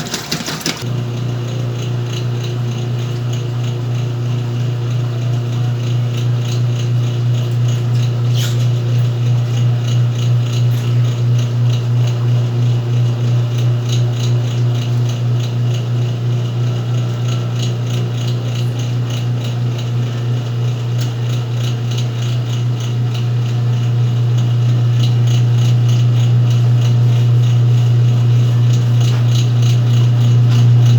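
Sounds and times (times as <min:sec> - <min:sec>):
washing machine running: 0:00.0 - 0:30.9.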